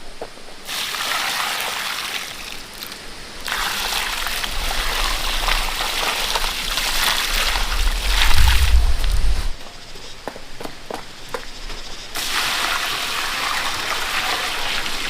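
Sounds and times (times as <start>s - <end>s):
water running and splashing: 0.6s - 9.6s, 12.2s - 15.0s.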